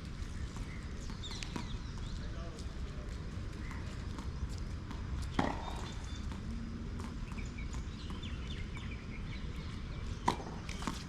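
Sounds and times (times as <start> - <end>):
footsteps on court: 0.1 - 11.0
ball bouncing: 3.6 - 9.0, 10.2 - 11.0
racket striking tennis ball: 4.9 - 6.4, 10.2 - 11.0.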